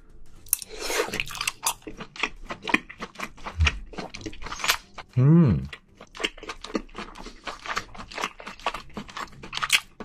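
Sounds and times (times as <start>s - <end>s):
person biting and chewing: 0.5s - 10.0s.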